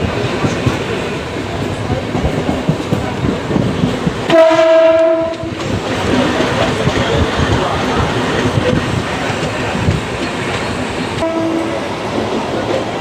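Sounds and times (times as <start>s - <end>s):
train rattling over track: 0.0s - 13.0s
train horn blast: 4.3s - 5.6s, 11.2s - 11.9s.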